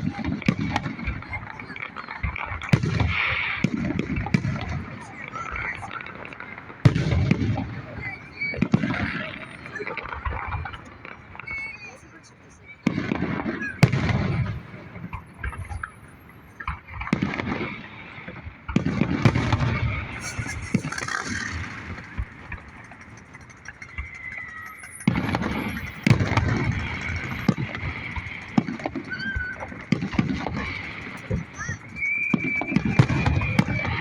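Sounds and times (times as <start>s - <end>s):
fireworks bangs: 0.0s - 34.0s
rolling rumble: 12.9s - 34.0s.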